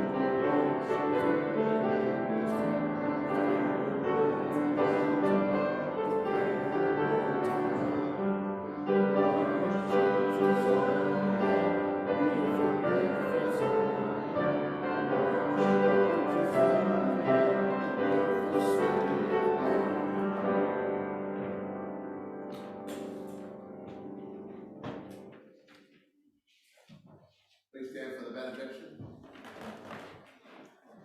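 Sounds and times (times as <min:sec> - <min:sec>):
piano playing a slow hymn: 0:00.0 - 0:25.5.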